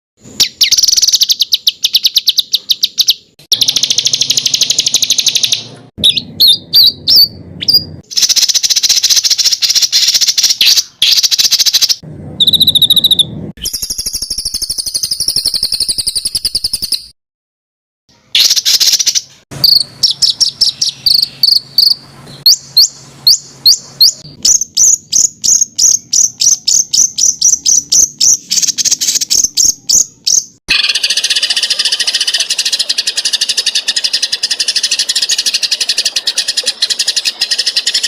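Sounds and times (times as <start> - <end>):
songbird rattling trills: 0.4 - 5.7, 8.1 - 17.0, 18.4 - 38.0.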